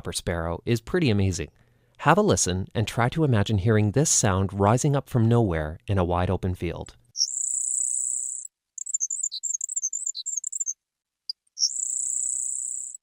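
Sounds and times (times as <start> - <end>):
sparrow singing high buzzes: 7.2 - 10.7, 11.6 - 13.0.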